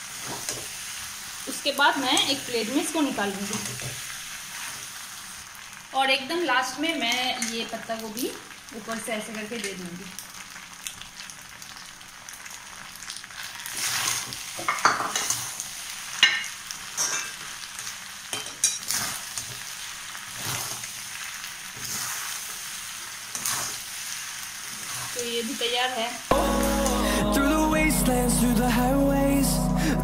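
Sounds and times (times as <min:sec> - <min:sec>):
noodles sizzling in a pan: 0:00.0 - 0:27.8.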